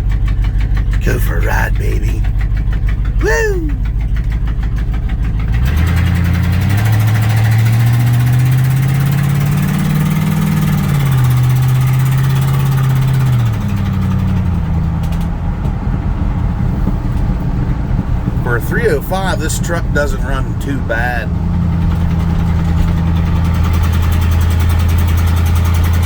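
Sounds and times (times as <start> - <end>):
pickup truck engine accelerating: 3.8 - 26.0.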